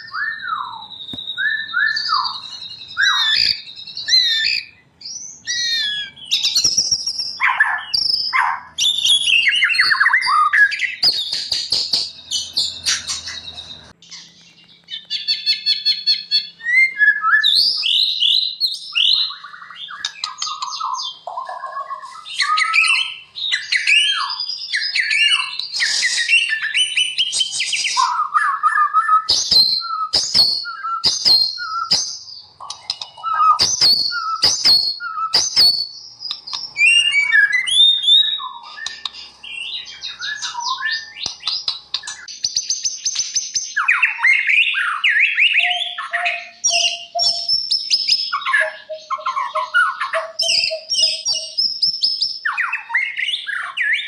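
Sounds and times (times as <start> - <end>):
bird singing whistled phrases: 0.0 - 54.0
high bird chips: 8.8 - 16.6, 29.2 - 42.3.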